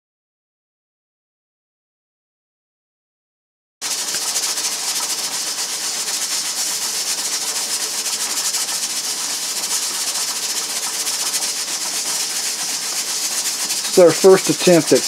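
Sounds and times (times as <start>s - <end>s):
steam hissing: 3.8s - 15.0s
pressure regulator rattling: 3.9s - 15.0s.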